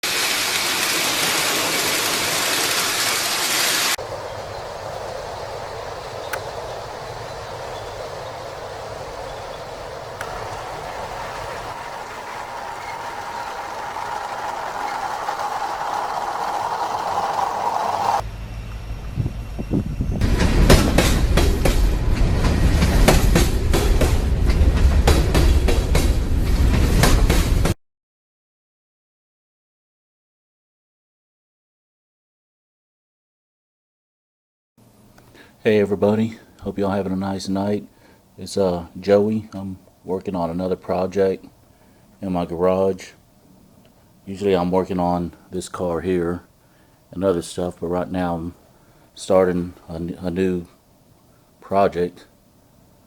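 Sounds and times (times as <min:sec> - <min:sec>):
toy trains rushing on track: 0:00.0 - 0:04.1, 0:09.6 - 0:18.2
wheels clicking over rail joints: 0:04.0 - 0:18.2
toy train rumble: 0:08.5 - 0:18.2.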